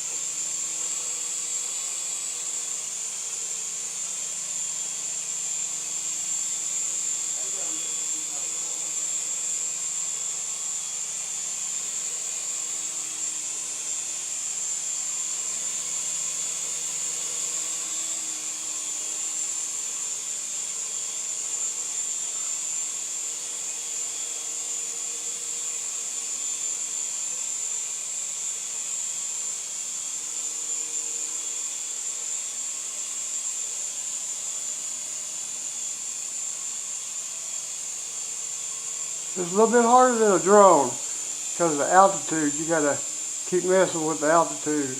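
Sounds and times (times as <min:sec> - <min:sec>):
toy helicopter rotors whirring: 0:00.0 - 0:44.9.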